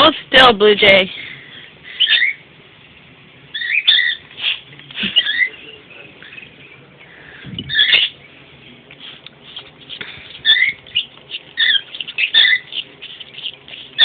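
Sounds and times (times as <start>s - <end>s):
pet birds chirping and squawking: 1.2s - 2.5s, 3.5s - 8.4s, 9.0s - 14.0s.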